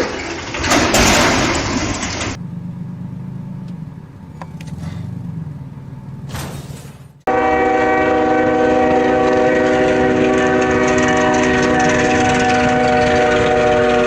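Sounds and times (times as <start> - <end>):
loud rushing road noise: 0.0 - 7.6
vehicle engine humming: 0.0 - 14.0.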